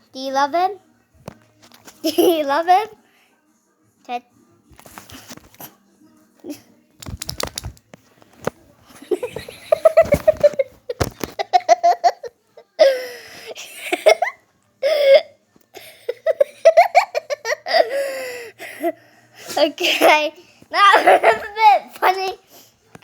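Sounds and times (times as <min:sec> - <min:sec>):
children laughing and giggling: 0:09.0 - 0:15.2, 0:15.8 - 0:18.1, 0:19.6 - 0:22.3.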